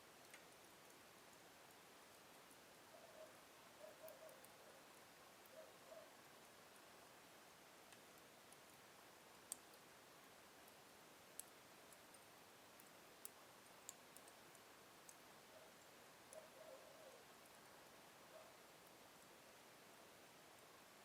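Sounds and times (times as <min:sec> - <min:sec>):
wood fire crackling: 0:00.2 - 0:02.8, 0:07.8 - 0:15.2.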